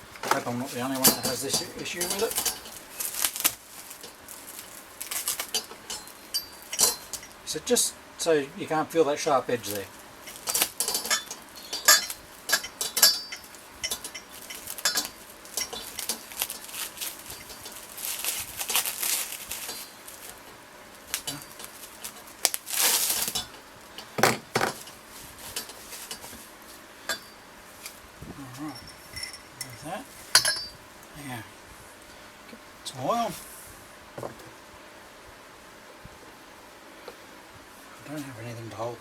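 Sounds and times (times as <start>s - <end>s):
cling film crinkling: 0.1s - 7.5s, 9.4s - 26.9s
metal tube clinks and knocks: 0.9s - 2.8s, 5.2s - 7.3s, 10.3s - 17.9s, 28.7s - 30.8s.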